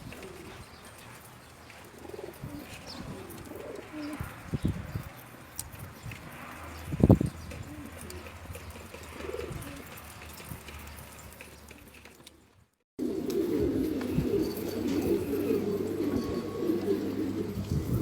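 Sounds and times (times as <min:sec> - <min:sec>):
pigeons cooing: 0:00.0 - 0:05.0, 0:07.0 - 0:10.2, 0:13.0 - 0:18.0.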